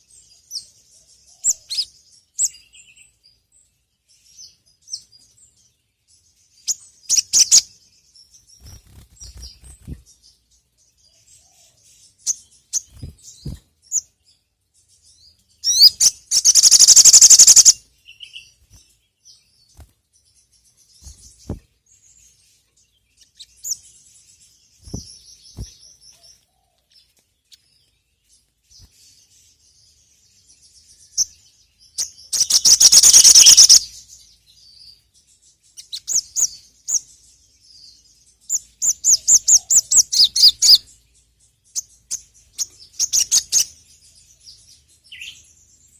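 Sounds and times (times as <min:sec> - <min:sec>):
sunbird chirping: 0:00.0 - 0:45.9
bird rapid trills: 0:08.6 - 0:10.1, 0:15.7 - 0:17.8, 0:32.3 - 0:33.8
bird repeated notes: 0:15.8 - 0:17.8, 0:32.5 - 0:33.8.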